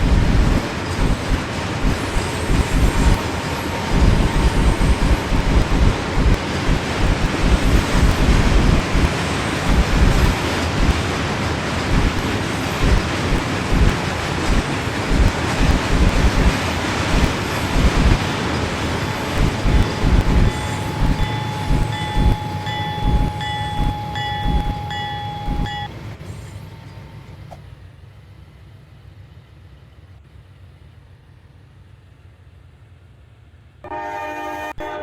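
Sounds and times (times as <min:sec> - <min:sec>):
freight train low thumping: 0:00.0 - 0:35.0
high ringing tone: 0:00.4 - 0:11.0, 0:11.9 - 0:25.9.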